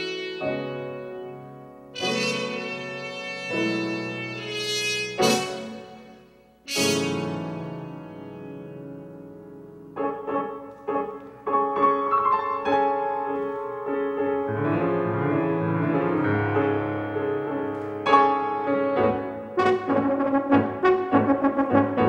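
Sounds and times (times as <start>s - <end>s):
piano notes: 0.0s - 22.0s
sustained accompaniment: 18.2s - 22.0s.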